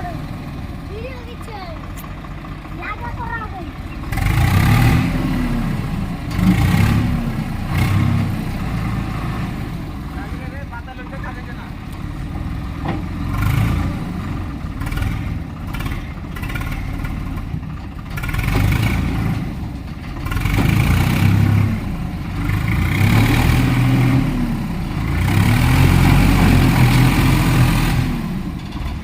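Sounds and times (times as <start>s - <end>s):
tractor diesel engine revving: 0.0s - 29.0s.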